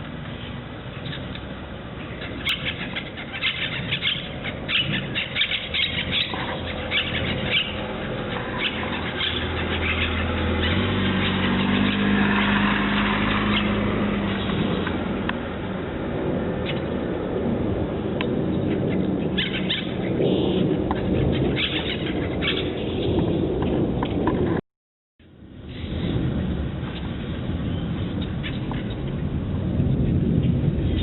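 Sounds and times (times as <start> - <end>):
vehicle engine hum: 0.0 - 24.6, 25.2 - 31.0
small birds chirping: 0.3 - 15.0, 18.5 - 23.8.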